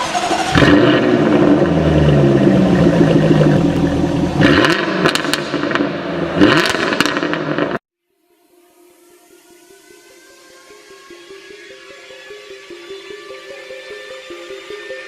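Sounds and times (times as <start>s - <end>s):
diesel engine revving: 0.0s - 7.8s.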